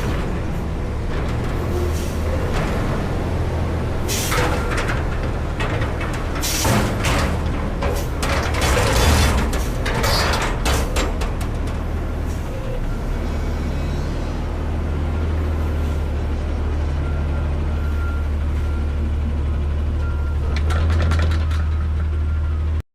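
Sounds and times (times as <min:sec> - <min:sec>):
garbage truck engine running: 0:00.0 - 0:22.8
clatter of knocks: 0:04.3 - 0:12.0, 0:20.5 - 0:22.1.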